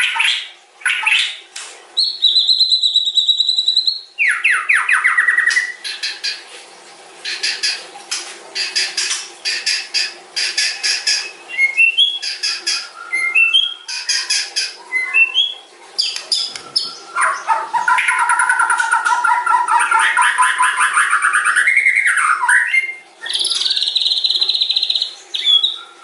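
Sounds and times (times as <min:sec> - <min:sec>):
bird rapid chattering notes: 0:08.6 - 0:15.4, 0:16.0 - 0:21.5
bird singing harsh scratchy notes: 0:08.6 - 0:26.0.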